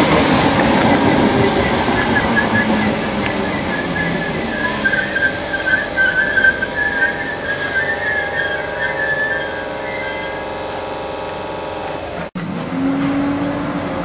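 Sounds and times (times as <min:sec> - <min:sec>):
electric train rumble: 0:00.0 - 0:14.0
high wavering whistle tone: 0:00.9 - 0:10.9.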